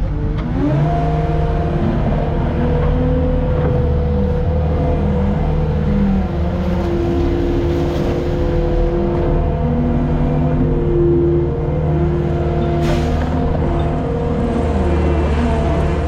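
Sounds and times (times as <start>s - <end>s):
skid steer engine running: 0.0s - 16.0s.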